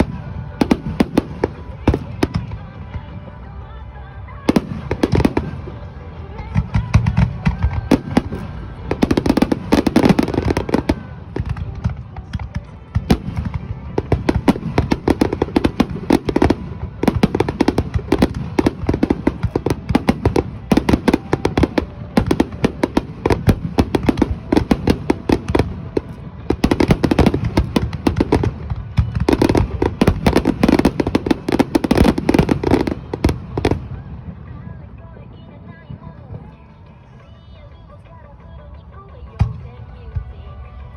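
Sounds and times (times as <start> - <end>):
fireworks bangs and crackles: 0.0 - 3.6, 4.3 - 37.4.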